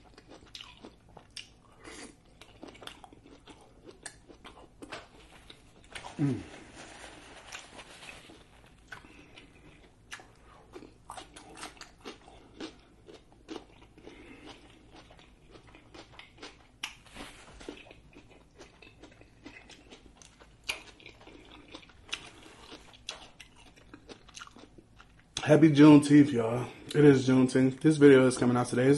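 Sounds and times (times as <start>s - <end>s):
close chewing with lip smacks: 0.0s - 6.2s, 8.7s - 17.0s, 17.6s - 25.4s.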